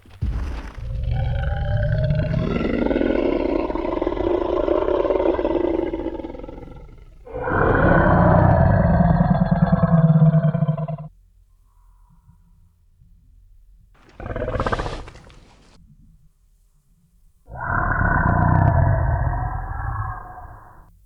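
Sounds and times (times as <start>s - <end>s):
deep monster roars: 0.2s - 11.1s, 14.0s - 15.7s, 17.5s - 20.9s.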